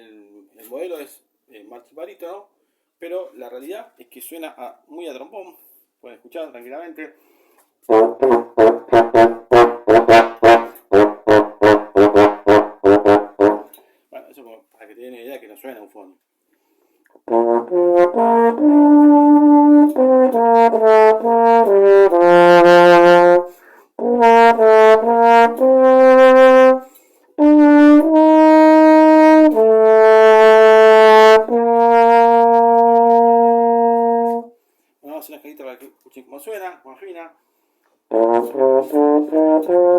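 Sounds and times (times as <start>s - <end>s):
marching baritone playing melody: 7.9s - 13.7s, 17.3s - 34.5s, 38.1s - 39.9s.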